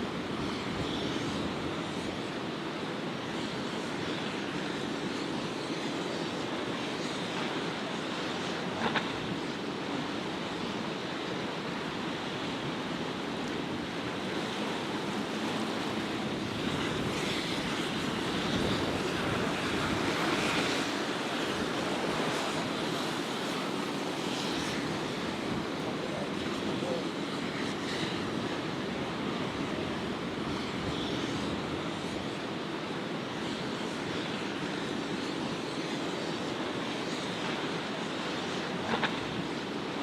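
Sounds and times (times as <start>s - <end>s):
ocean waves breaking: 8.7s - 27.5s
wind buffeting microphone: 12.7s - 32.3s.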